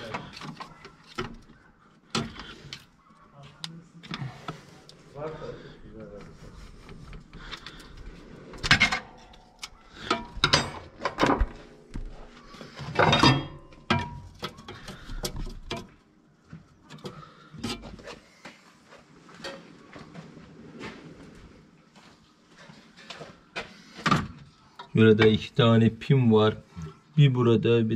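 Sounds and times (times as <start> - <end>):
metal tools clinking and knocking: 8.6 - 11.4, 12.9 - 15.9.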